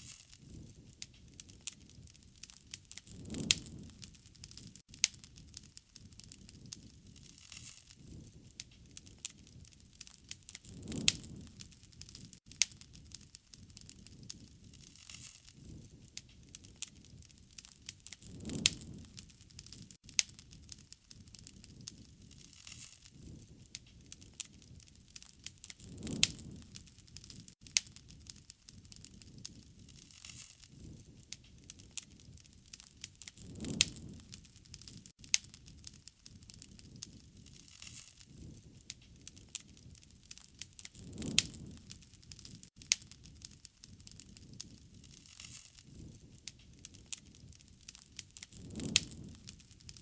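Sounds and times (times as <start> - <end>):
wood fire crackling: 0.0 - 50.0.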